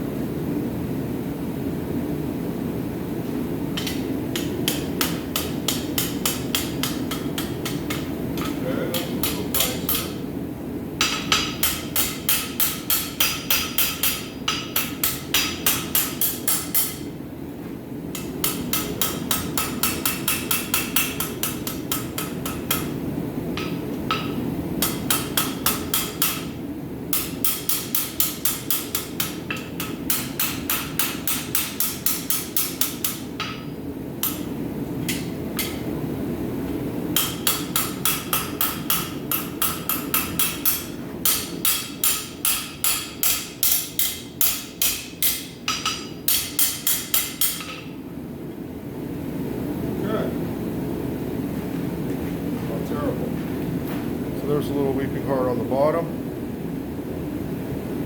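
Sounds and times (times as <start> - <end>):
hammer ringing on anvil: 37.2 - 47.9.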